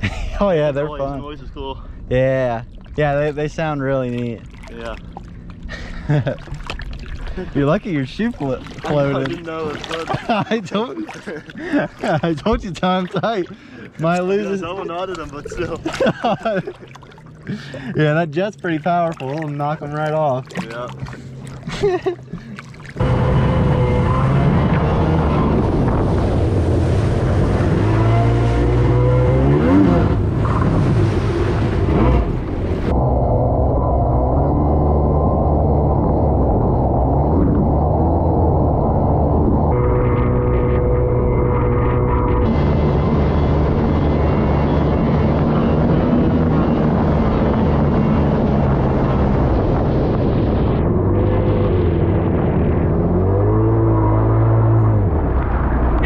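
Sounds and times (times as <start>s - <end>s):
water rushing: 0.0s - 33.0s
wind: 0.0s - 56.0s
jet ski engine revving: 3.0s - 56.0s.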